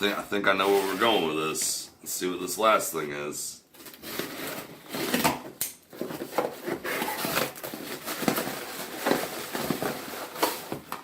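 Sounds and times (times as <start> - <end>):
packaging rustling and crinkling: 5.9 - 11.0.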